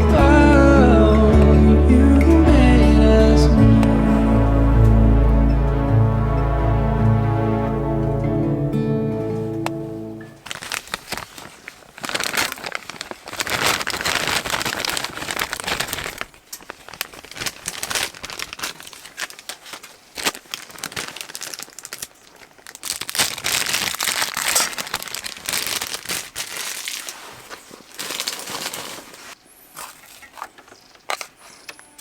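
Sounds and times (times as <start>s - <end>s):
crinkling and rustling: 9.5s - 32.0s.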